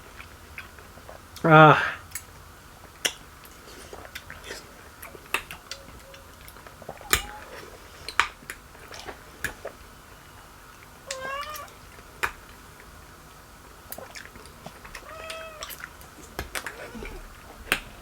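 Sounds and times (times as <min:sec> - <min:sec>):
eating clicks and smacks: 0:02.1 - 0:09.9, 0:10.7 - 0:13.0, 0:13.8 - 0:18.0
cat meowing: 0:07.0 - 0:07.6, 0:11.1 - 0:11.8, 0:15.0 - 0:15.8.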